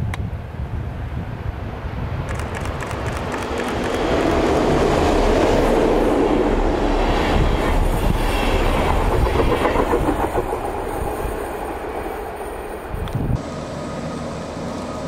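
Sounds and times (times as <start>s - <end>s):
train wheels rumbling on bridge: 2.2s - 13.4s.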